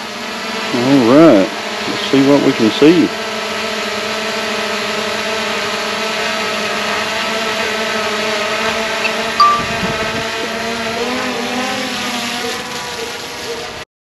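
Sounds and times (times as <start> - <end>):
short beep: 9.4 - 9.8.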